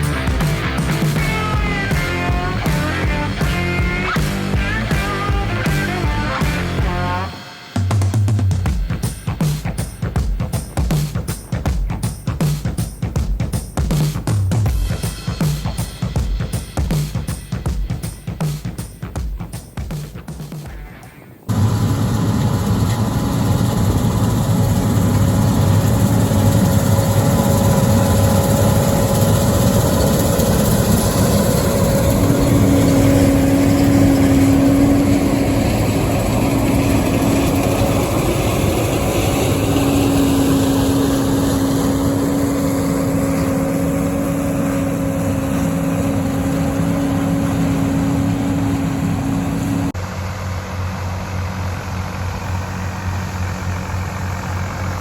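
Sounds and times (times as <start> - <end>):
combine harvester engine drone: 0.0 - 7.7, 21.5 - 55.0
faint rising whine: 21.5 - 51.3.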